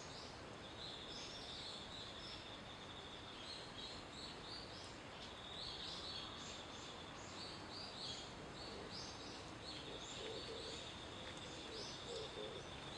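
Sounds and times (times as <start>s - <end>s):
outdoor background hiss: 0.0s - 12.9s.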